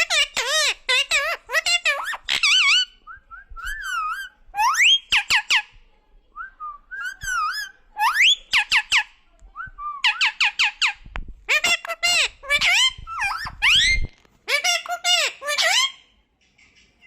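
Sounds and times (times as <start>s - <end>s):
parrot whistling and calling: 0.0s - 5.6s, 7.0s - 9.0s, 10.0s - 11.0s, 11.6s - 16.0s.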